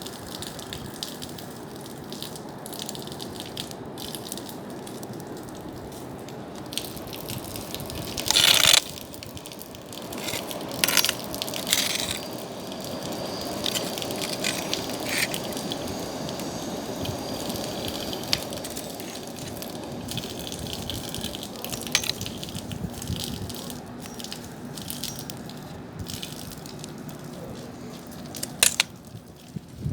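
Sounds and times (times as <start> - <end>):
fire crackling and popping: 0.7 - 29.8
flames rushing: 6.7 - 23.0.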